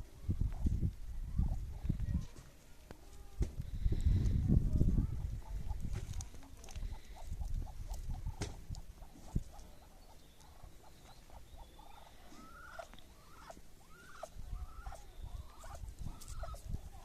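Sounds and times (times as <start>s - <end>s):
small animals squeaky calls: 7.0s - 17.0s.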